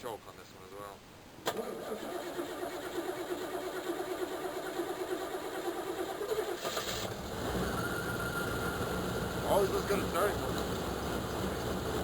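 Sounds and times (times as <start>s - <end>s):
starter motor cranking: 1.5s - 7.6s
car engine starting: 1.5s - 12.0s.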